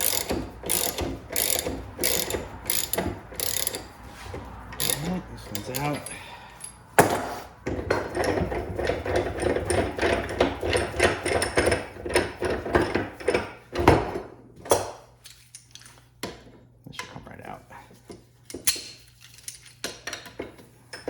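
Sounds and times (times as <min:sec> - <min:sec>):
metal knocking and tapping: 0:07.0 - 0:14.9.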